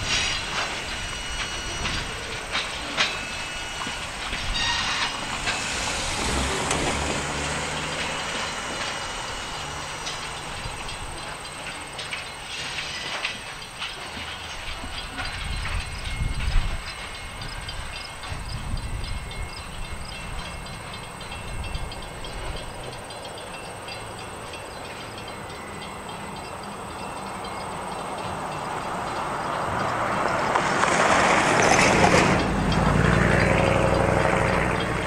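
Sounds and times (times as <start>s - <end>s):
hiss: 0.0s - 15.3s
freight cars thumping and clanking: 0.0s - 23.0s, 27.3s - 35.0s
wheels clicking over rail joints: 0.0s - 35.0s.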